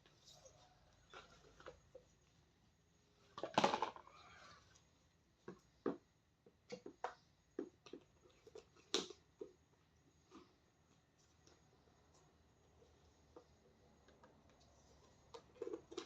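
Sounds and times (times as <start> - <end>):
knocks and taps of containers: 5.4 - 8.2.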